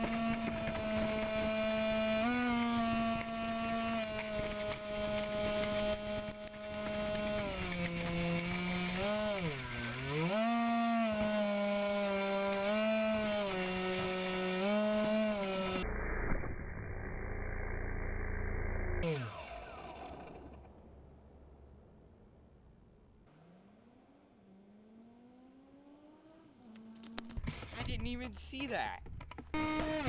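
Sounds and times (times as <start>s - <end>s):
rc airboat motor and propeller: 0.0s - 20.7s, 29.3s - 30.0s.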